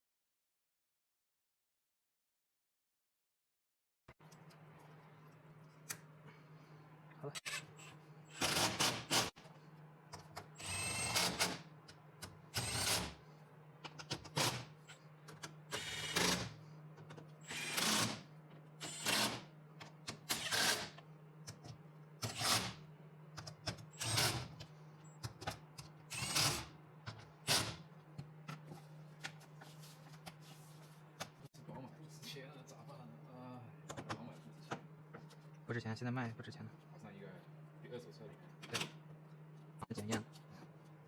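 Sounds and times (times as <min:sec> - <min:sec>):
power tool bursts: 0:08.3 - 0:09.3, 0:17.5 - 0:18.2, 0:18.8 - 0:19.4, 0:20.3 - 0:20.9.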